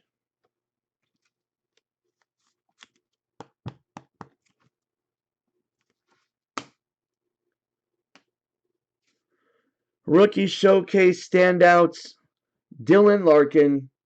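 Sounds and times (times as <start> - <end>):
cards tapping and clicking on table: 2.7 - 4.7.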